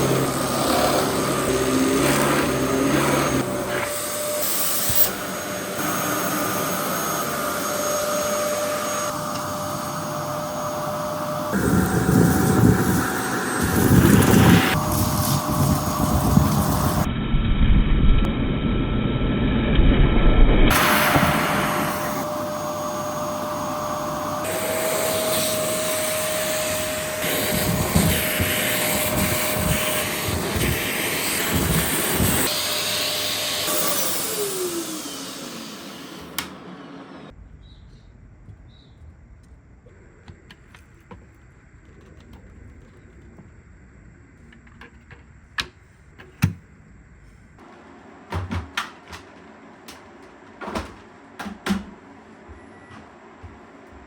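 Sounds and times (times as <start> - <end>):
vacuum cleaner running: 0.0 - 17.2, 18.4 - 37.3
motor winding down: 0.0 - 36.6.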